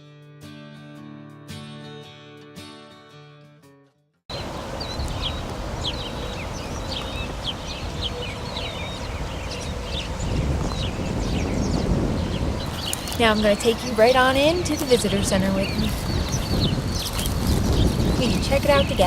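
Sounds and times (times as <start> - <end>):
birds chirping: 4.3 - 19.0.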